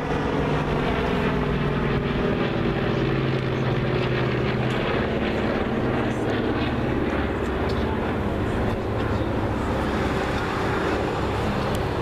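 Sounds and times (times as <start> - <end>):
propeller airplane engine droning: 0.0 - 12.0.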